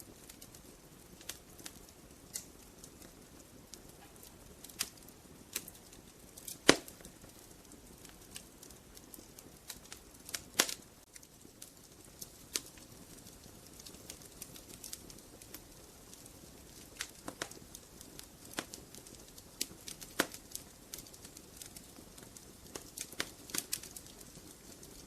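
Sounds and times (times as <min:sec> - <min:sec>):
low hiss: 0:00.0 - 0:25.0
wood fire crackling: 0:00.0 - 0:25.0
sharp pops: 0:06.5 - 0:07.1.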